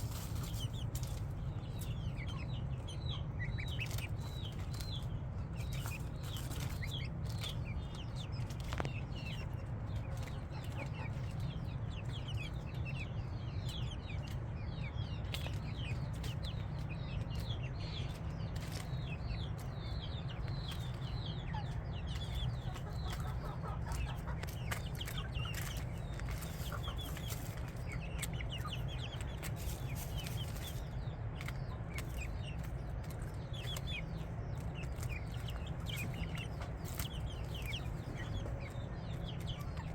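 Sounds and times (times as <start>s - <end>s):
chickens peeping and chirping: 0.0s - 39.9s.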